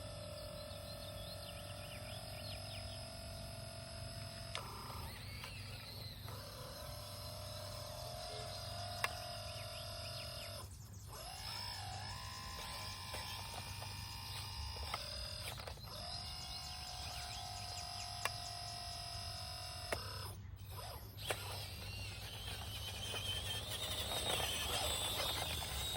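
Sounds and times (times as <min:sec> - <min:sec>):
small electric motors whining: 0:00.0 - 0:25.9
sharp clicks: 0:11.2 - 0:25.9.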